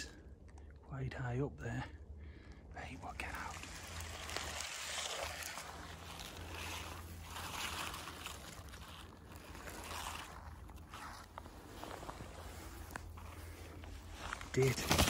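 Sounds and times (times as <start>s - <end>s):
rustling branches and foliage: 2.0s - 15.0s
footsteps through bushes: 3.1s - 15.0s.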